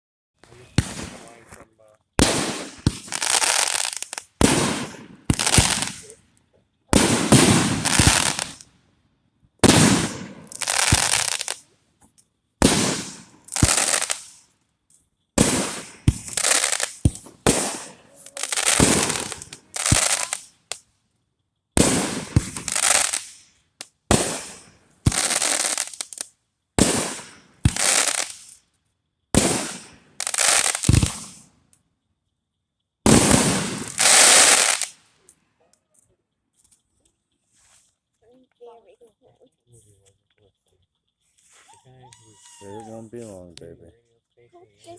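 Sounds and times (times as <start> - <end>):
fireworks banging and crackling: 0.4 - 6.2, 6.9 - 8.6, 9.6 - 11.6, 12.6 - 14.4, 15.4 - 20.8, 21.8 - 28.6, 29.4 - 31.5, 33.1 - 35.0, 42.4 - 43.6.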